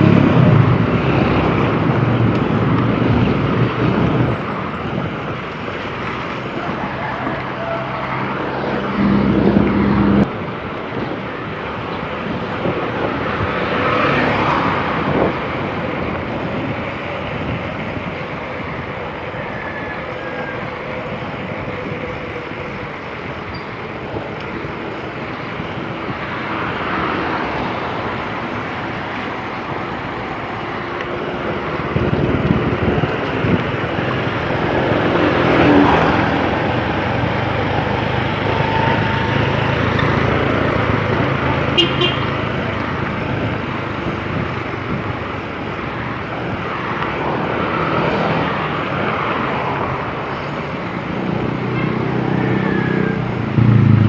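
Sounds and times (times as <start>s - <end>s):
wind rushing: 0.0s - 10.7s
road traffic: 0.0s - 54.0s.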